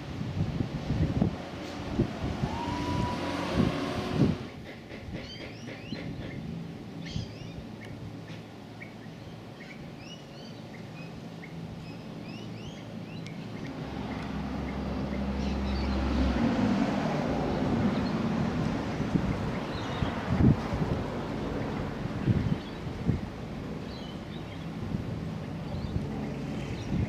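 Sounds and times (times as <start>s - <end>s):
wind rumbling on microphone: 0.0s - 7.7s, 13.6s - 27.0s
helicopter droning: 1.3s - 4.6s.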